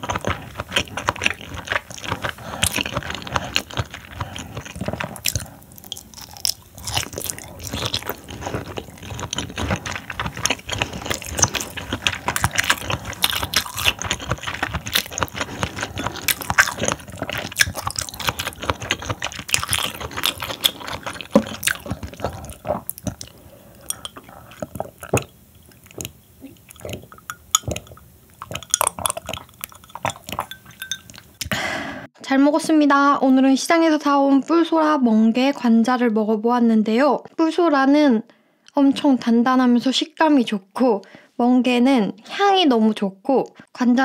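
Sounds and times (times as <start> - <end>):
chewing raw seafood: 0.0 - 31.6.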